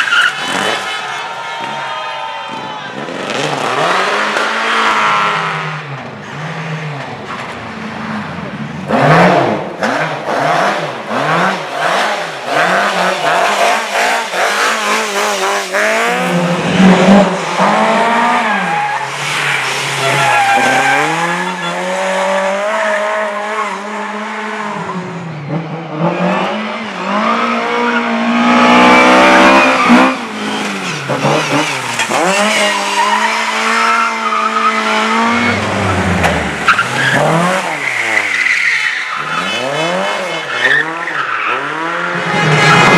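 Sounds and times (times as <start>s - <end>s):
race car engine revving: 2.6s - 42.9s
tyres squealing: 18.4s - 21.9s, 28.9s - 39.7s.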